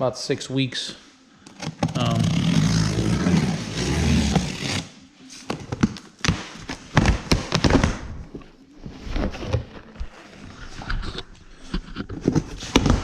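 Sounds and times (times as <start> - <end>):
packaging rustling and scraping: 1.5 - 13.0.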